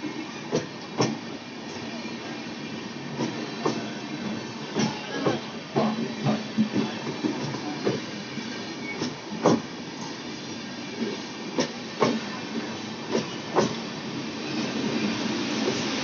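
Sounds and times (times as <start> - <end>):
train wheels clacking over rail joint: 9.0 - 10.1, 11.6 - 12.2, 13.1 - 13.8.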